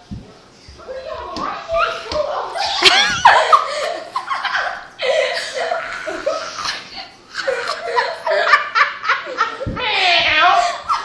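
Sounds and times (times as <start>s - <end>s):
person laughing loudly: 2.6s - 9.7s.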